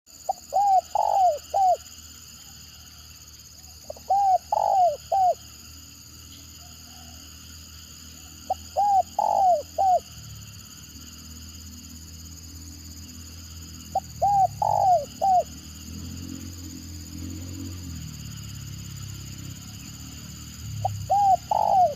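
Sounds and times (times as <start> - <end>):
dove cooing: 0.3 - 1.8, 3.9 - 5.4, 8.5 - 10.1, 13.9 - 15.6, 20.8 - 21.9.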